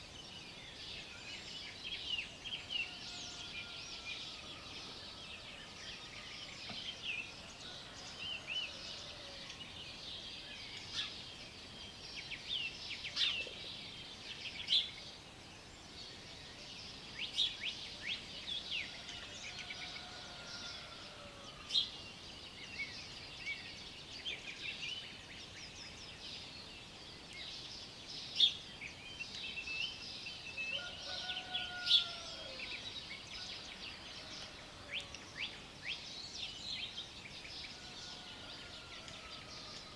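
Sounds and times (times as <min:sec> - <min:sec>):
songbirds chirping and trilling: 0:00.0 - 0:39.9
distant rooster crowing: 0:02.8 - 0:06.8, 0:07.4 - 0:09.6, 0:18.8 - 0:21.8, 0:30.7 - 0:32.8, 0:37.7 - 0:39.9.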